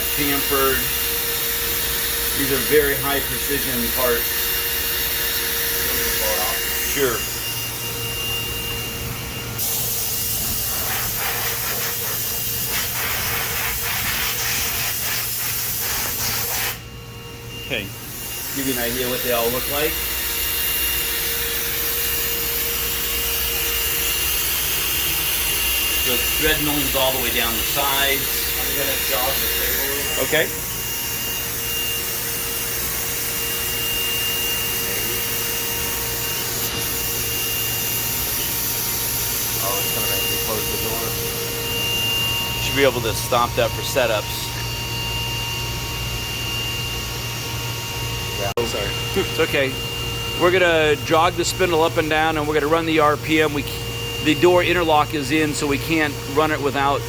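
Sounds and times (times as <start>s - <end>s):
coolant spray hissing: 0.0s - 8.0s, 9.6s - 16.8s, 18.6s - 41.6s
faint high whine: 0.0s - 57.0s
machine low hum: 0.0s - 57.0s.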